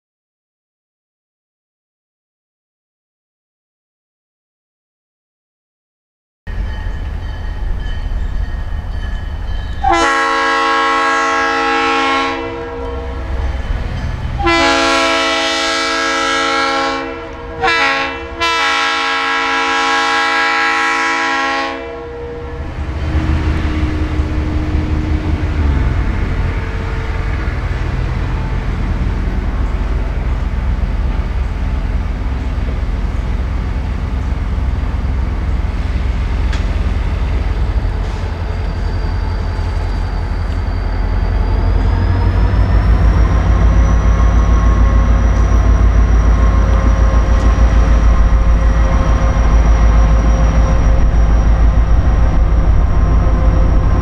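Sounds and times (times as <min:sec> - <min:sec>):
locomotive air horn: 0:09.8 - 0:13.6, 0:14.3 - 0:28.6
diesel engine rumble: 0:22.5 - 0:38.5, 0:41.6 - 0:54.0.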